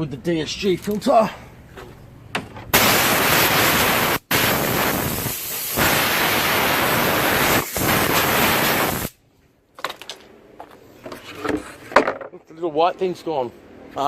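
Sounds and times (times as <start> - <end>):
air blow gun blasts: 2.7 - 9.2.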